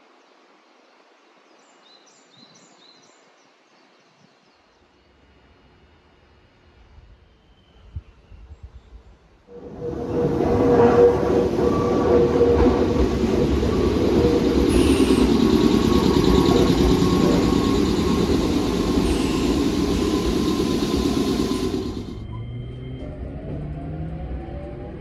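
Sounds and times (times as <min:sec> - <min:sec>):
faint train whine: 0:09.5 - 0:23.8
electric train rumbling on rails: 0:09.5 - 0:25.0.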